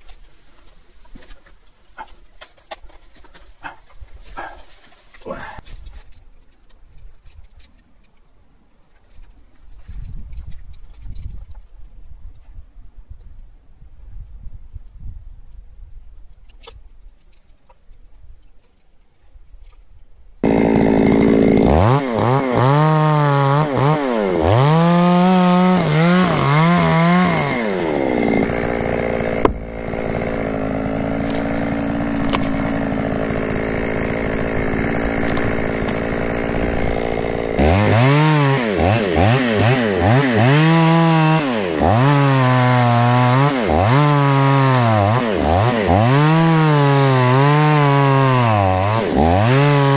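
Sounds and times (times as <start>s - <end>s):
chainsaw revving: 20.4s - 49.9s.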